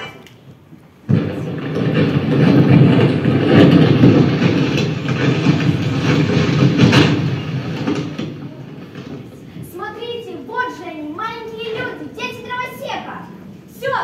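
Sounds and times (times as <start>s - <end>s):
rumbling stage sound effect: 0.9s - 14.0s.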